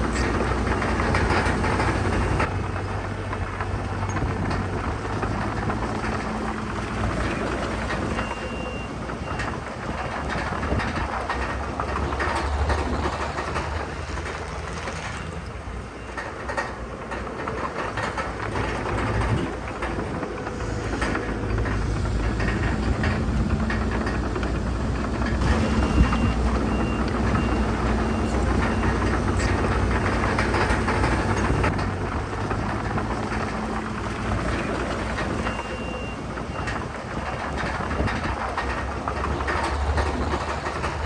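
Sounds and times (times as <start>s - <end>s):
clanking and rattling: 0.0s - 41.0s
diesel machinery engine drone: 0.0s - 41.0s
reversing alarm beeps: 25.4s - 31.6s.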